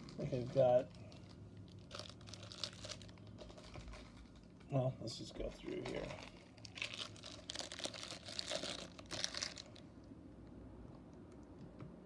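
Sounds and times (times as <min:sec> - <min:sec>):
crinkling plastic packaging: 0:00.0 - 0:04.9, 0:05.6 - 0:10.1.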